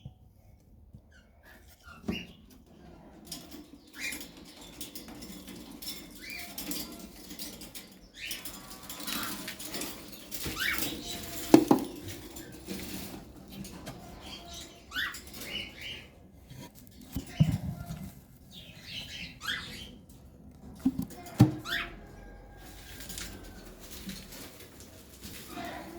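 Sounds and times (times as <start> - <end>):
knock against cage: 11.5 - 12.0.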